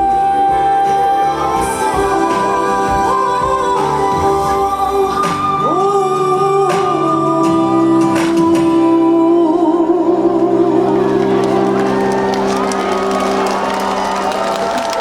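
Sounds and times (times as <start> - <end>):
woman singing with vibrato: 0.0 - 11.8
live band playing ballad: 0.0 - 14.7.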